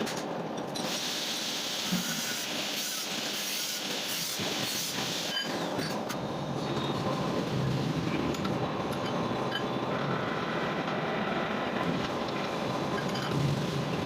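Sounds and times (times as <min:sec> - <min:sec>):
workshop machinery running: 0:00.0 - 0:14.0
hiss: 0:00.8 - 0:05.7.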